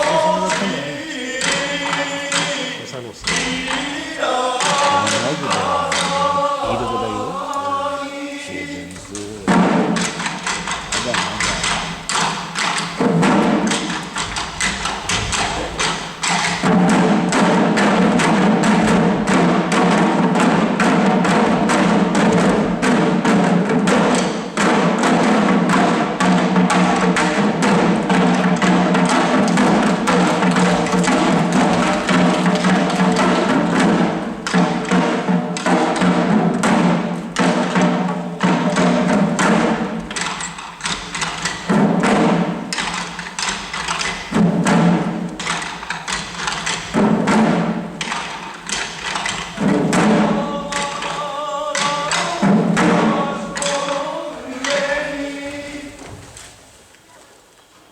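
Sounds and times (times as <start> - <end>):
drums beating quickly: 0.0 - 56.2.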